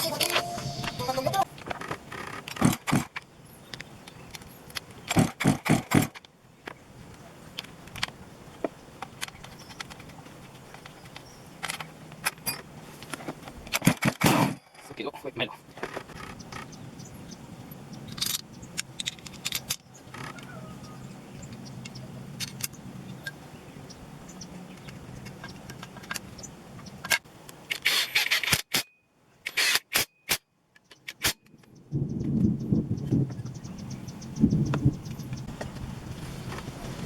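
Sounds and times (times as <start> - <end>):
metallic clicks and clatter: 18.1 - 20.5.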